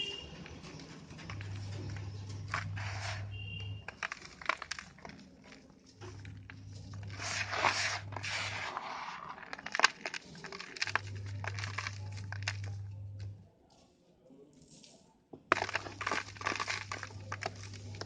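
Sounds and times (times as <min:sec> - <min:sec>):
gritty crunching of cement pieces: 0:00.0 - 0:13.4, 0:15.3 - 0:18.0
low steady hum: 0:00.0 - 0:13.6
cement pieces cracking and snapping: 0:00.2 - 0:03.2, 0:03.8 - 0:08.2, 0:09.2 - 0:13.4, 0:15.4 - 0:18.0.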